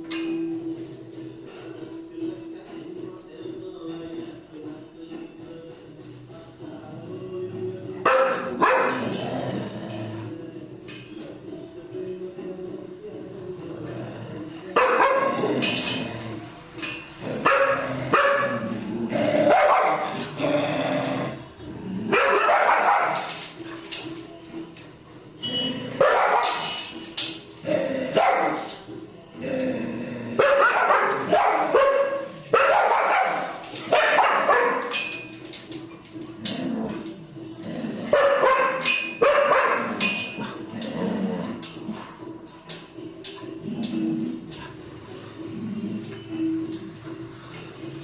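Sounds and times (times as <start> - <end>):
dogs barking and yelping: 8.0 - 10.0, 14.6 - 24.2, 25.4 - 28.9, 30.3 - 35.7, 36.4 - 44.7.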